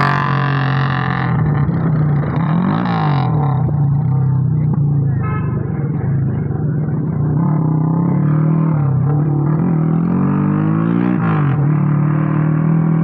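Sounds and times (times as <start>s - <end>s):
motorcycle engine revving: 0.0s - 5.2s, 6.0s - 13.0s.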